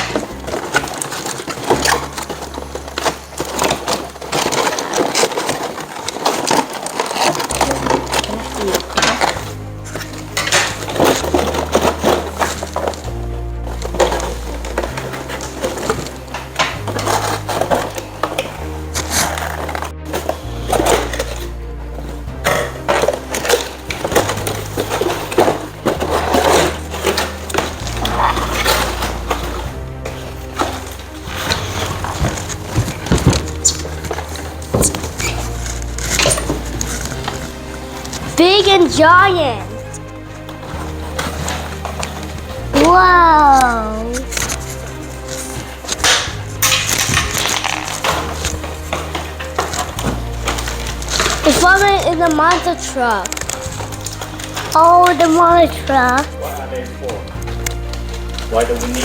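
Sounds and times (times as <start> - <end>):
crackling and rustling: 0.0 - 59.0
hard objects clicking and rattling: 0.0 - 59.0
low bass line: 7.5 - 52.3.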